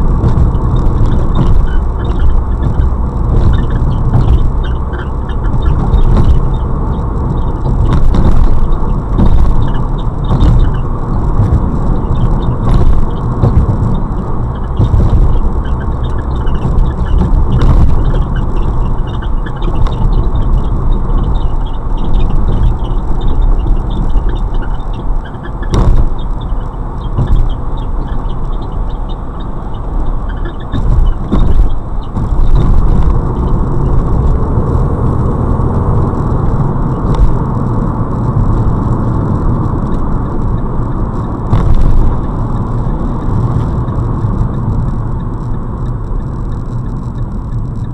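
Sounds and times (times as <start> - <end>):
road and tyre rumble: 0.0 - 47.9.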